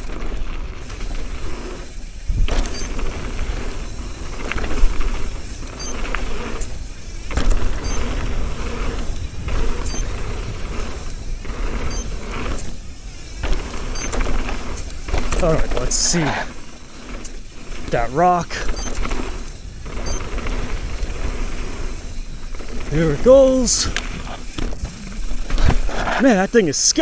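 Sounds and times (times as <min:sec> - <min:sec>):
bike rattling: 0:00.0 - 0:27.0
bike tyres rolling over dirt: 0:00.0 - 0:27.0
bike landing thuds: 0:00.8 - 0:15.4, 0:24.0 - 0:26.3.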